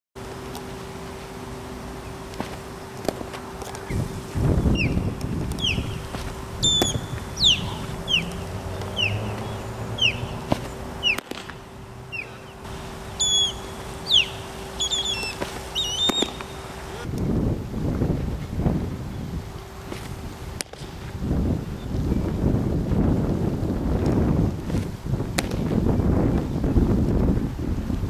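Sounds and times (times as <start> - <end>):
steady low hum: 0.2 - 28.0
songbird whistling: 4.6 - 11.2, 12.1 - 16.6.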